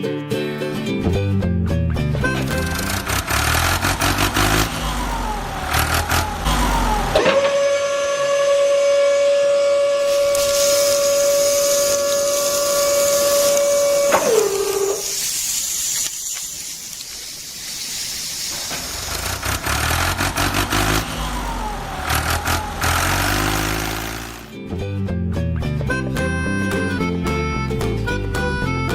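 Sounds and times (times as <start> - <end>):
low engine rumbling: 1.9 - 14.4, 18.6 - 27.0
whistle-like tone: 4.4 - 15.6
hissing noise: 10.0 - 24.5.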